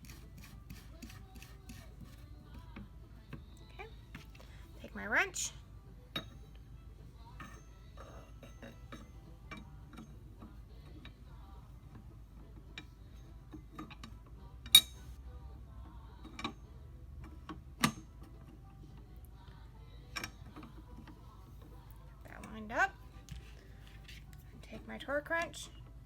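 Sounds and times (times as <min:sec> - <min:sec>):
wrench clicking on metal: 0:13.8 - 0:15.1
sharp metal clank: 0:14.8 - 0:15.0.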